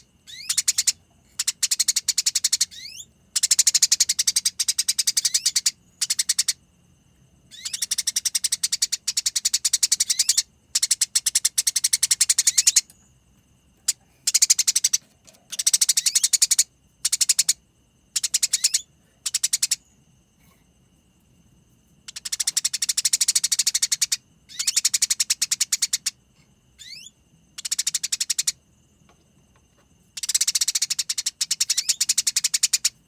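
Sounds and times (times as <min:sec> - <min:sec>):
songbird rattling trills: 0:00.2 - 0:06.6, 0:07.5 - 0:13.1, 0:13.8 - 0:19.9, 0:22.1 - 0:26.2, 0:26.8 - 0:28.6, 0:30.2 - 0:33.0.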